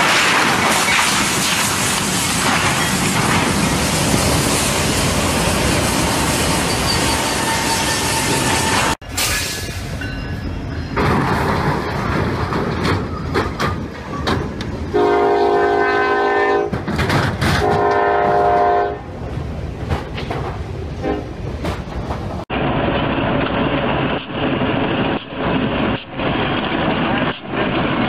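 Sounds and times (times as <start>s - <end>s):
diesel freight train rumbling: 0.0s - 28.0s
locomotive horn blasts: 14.9s - 16.8s, 17.6s - 19.0s, 21.0s - 21.3s.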